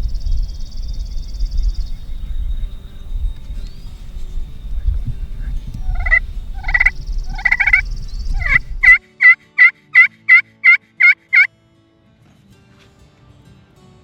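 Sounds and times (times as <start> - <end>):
low rumble: 0.0 - 9.0
turkey yelping: 4.5 - 11.5.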